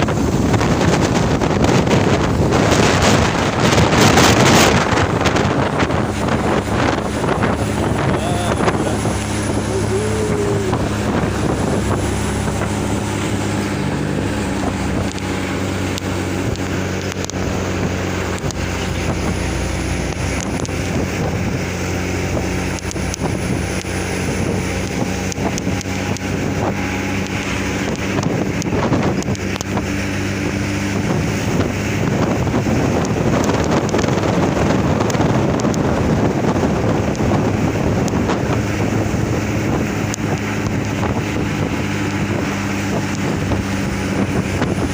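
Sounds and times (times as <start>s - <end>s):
wind and road noise: 0.0s - 44.9s
truck engine droning: 2.2s - 33.5s.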